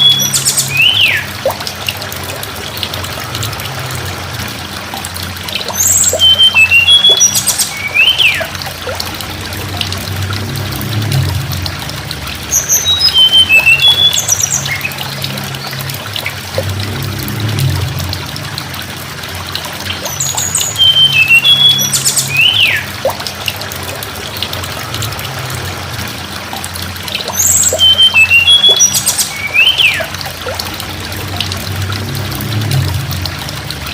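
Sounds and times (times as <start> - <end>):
songbird singing whistled notes: 0.0 - 1.3, 5.7 - 8.5, 12.6 - 15.1, 20.0 - 22.9, 27.2 - 30.2
low hum: 0.0 - 28.4, 29.3 - 33.9
running water: 0.0 - 33.9.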